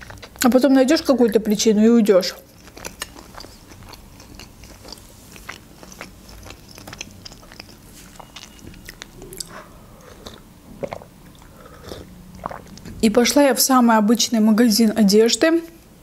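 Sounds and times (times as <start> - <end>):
wet chewing mouth sounds: 0.0 - 1.6, 2.2 - 13.1.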